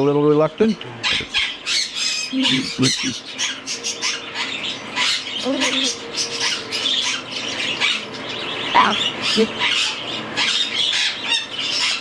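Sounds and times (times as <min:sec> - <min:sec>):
cockatiel chicks begging calls: 0:00.9 - 0:12.0.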